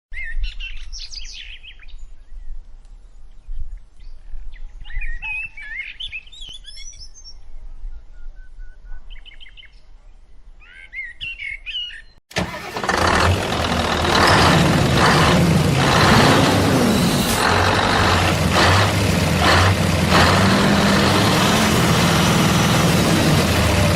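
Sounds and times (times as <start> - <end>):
heavy vehicle engine running: 12.3 - 23.9.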